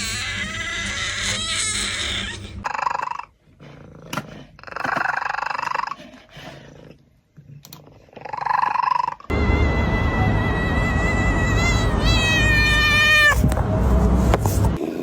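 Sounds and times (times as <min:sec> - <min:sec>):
cat growling and yowling: 0:08.2 - 0:13.4.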